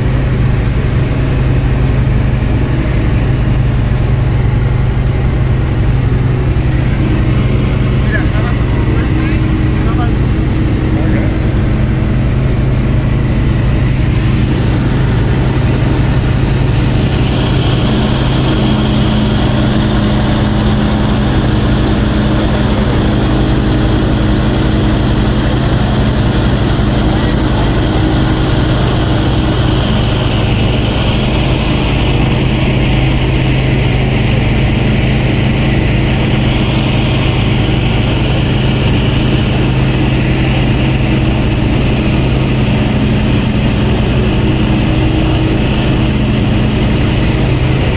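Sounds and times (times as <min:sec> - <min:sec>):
light aircraft engine droning: 0:00.0 - 0:47.9.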